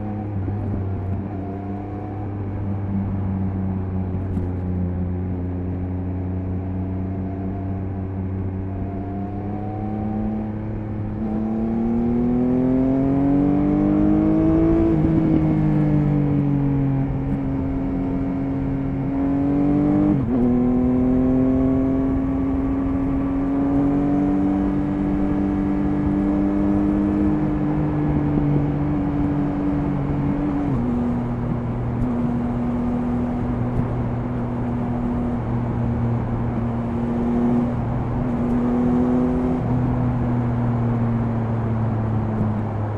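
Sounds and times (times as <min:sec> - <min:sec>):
motorcycle engine revving: 0:17.1 - 0:42.9.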